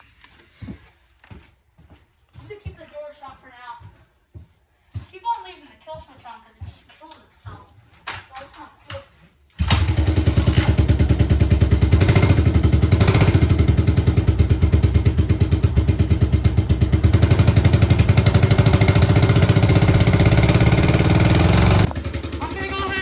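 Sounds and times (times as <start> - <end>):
dirt bike engine idling: 9.6 - 23.0.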